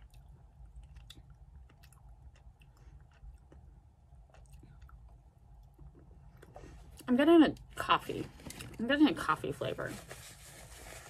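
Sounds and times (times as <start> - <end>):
faint chewing mouth clicks: 0.0 - 7.1.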